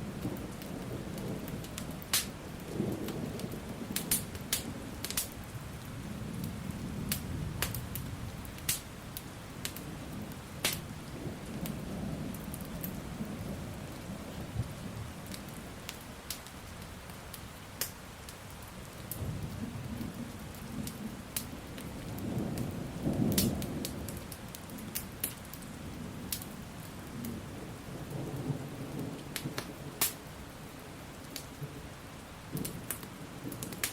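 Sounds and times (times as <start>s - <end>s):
low rolling thunder: 0.0s - 15.8s, 19.1s - 30.4s
crackling wood fire: 0.0s - 33.9s
steady rain: 0.0s - 33.9s.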